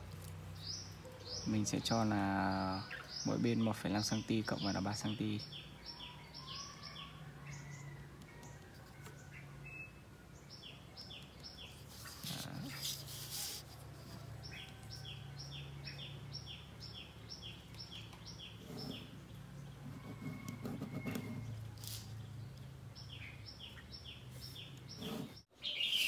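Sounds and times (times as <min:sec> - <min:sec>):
bird chirping: 0:00.5 - 0:26.0
plastic ruler scraping cardboard: 0:11.7 - 0:14.3, 0:18.6 - 0:19.2, 0:19.8 - 0:22.1, 0:24.6 - 0:25.4.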